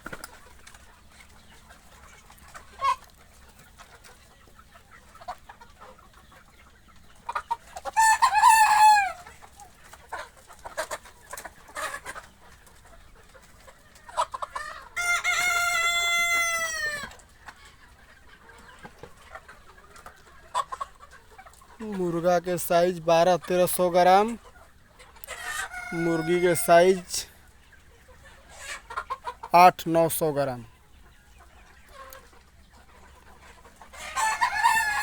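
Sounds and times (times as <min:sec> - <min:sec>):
chickens clucking: 0:00.0 - 0:35.0
rooster crowing: 0:25.7 - 0:26.8.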